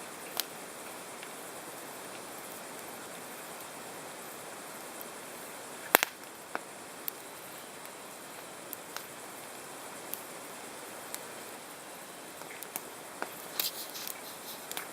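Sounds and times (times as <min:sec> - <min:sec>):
campfire flames hissing: 0:00.0 - 0:14.9
fire crackles and pops: 0:00.1 - 0:14.9.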